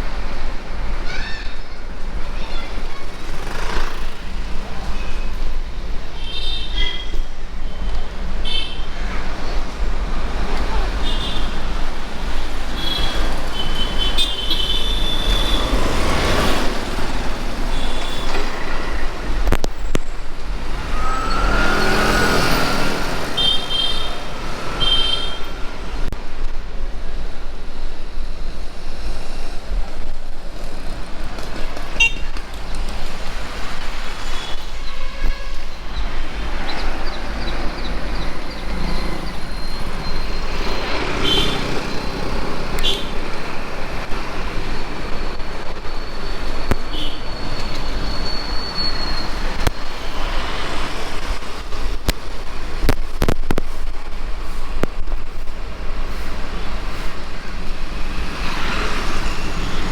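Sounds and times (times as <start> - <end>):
motor vehicles passing: 1.7 - 6.2, 8.2 - 26.2, 35.6 - 59.9
high-pitched horn toots: 20.6 - 25.9.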